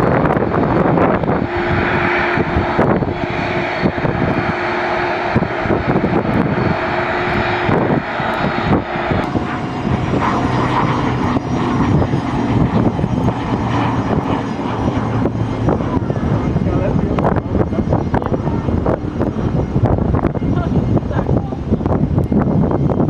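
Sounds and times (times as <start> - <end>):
airliner engines roaring: 0.0 - 23.0
steady engine hum: 0.0 - 23.0.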